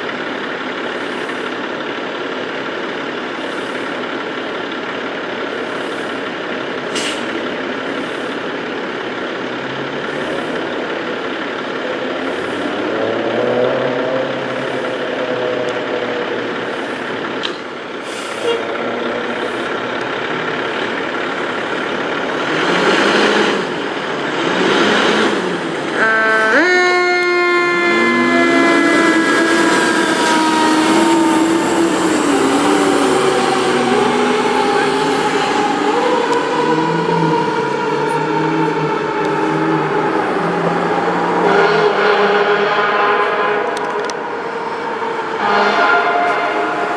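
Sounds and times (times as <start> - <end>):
diesel engine running: 0.0 - 46.9
air brake hiss: 6.9 - 7.4, 18.0 - 18.6.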